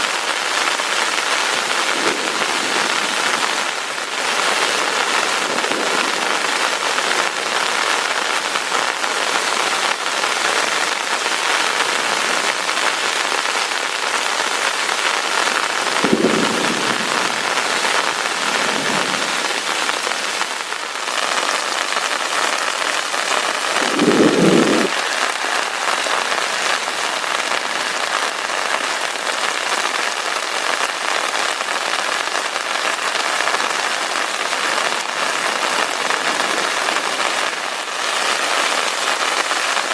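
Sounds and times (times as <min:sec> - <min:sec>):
heavy rain: 0:00.0 - 0:39.9
low thunder rumbles: 0:01.8 - 0:03.6, 0:15.9 - 0:19.7, 0:23.5 - 0:25.0.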